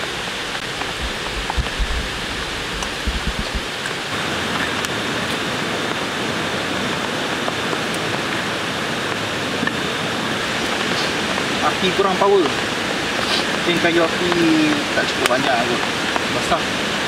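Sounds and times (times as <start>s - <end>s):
low rumble: 0.0s - 3.8s
steady rain falling: 0.0s - 17.0s.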